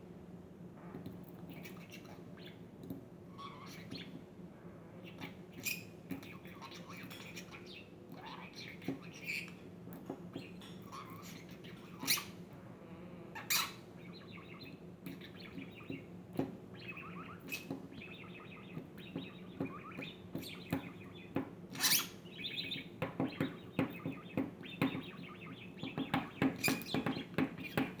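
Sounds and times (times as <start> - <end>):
budgerigar chattering: 10.8 - 12.4, 13.4 - 16.1, 16.7 - 28.0.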